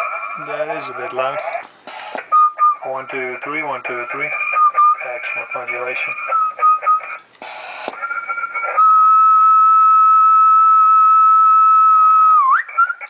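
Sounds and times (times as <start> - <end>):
person whistling a steady note: 2.2 - 3.0, 4.4 - 7.2, 7.9 - 13.0.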